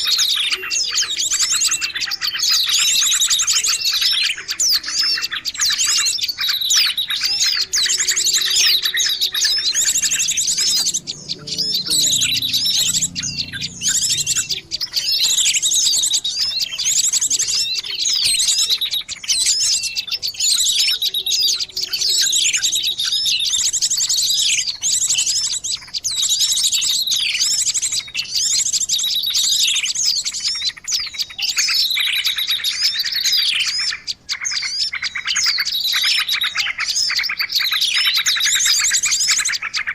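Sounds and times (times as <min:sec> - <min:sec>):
small songbirds chirping and trilling: 0:00.0 - 0:39.9.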